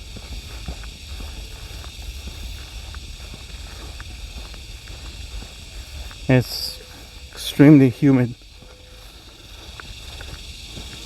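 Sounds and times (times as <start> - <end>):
wind rumble on microphone: 0.0 - 7.5
footsteps on a trail: 0.0 - 11.0
steady high hiss: 0.0 - 11.0.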